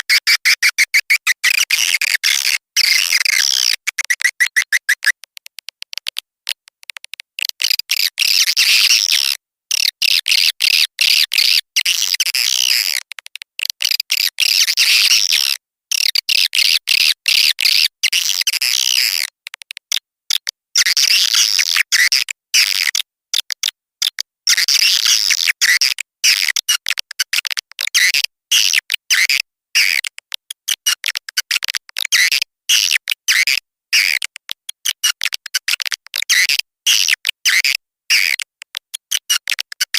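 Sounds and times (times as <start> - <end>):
high-pitched twittering chirps: 4.0 - 5.1.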